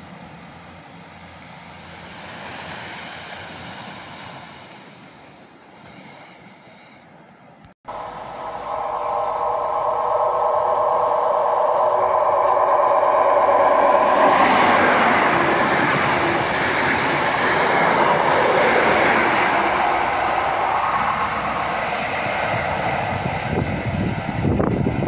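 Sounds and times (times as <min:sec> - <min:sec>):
train rushing past: 0:07.9 - 0:25.0
train whine: 0:07.9 - 0:25.0.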